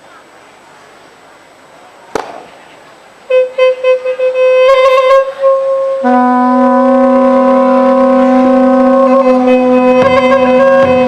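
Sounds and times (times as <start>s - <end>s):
reedy wind instrument: 3.2s - 11.0s
loud low drone: 5.9s - 11.0s.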